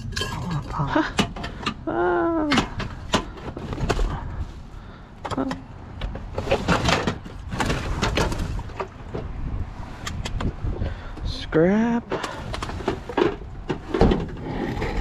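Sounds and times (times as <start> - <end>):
junk knocking and clanking: 0.0 - 4.4, 5.2 - 10.9, 12.1 - 15.0.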